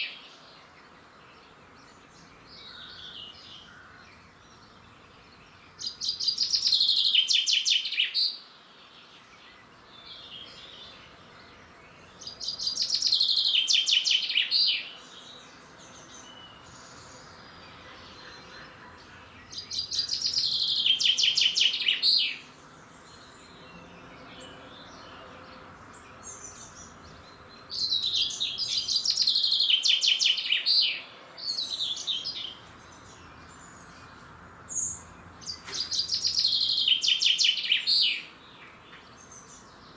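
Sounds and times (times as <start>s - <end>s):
songbird trilling: 34.7s - 38.3s.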